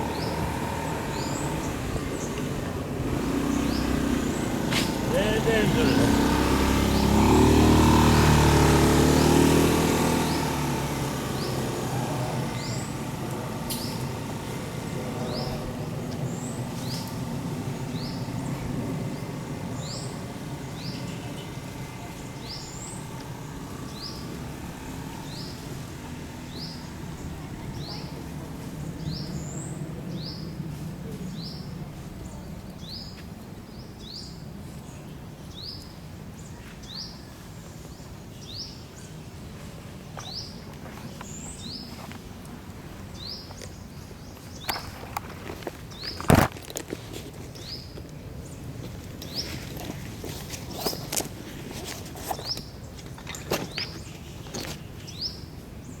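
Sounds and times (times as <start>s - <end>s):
bird chirping: 0.0s - 30.6s
vehicle rumble: 0.0s - 56.0s.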